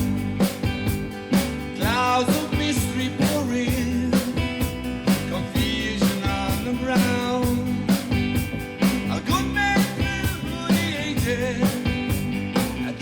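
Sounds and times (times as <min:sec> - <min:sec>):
rock band playing: 0:00.0 - 0:13.0
person singing: 0:01.8 - 0:08.0, 0:09.0 - 0:13.0.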